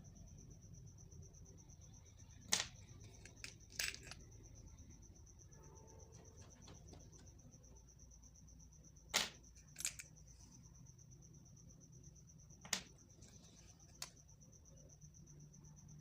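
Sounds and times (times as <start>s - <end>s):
faint high whine: 0.0s - 16.0s
hard objects clicking and knocking: 2.4s - 4.3s, 9.1s - 10.2s.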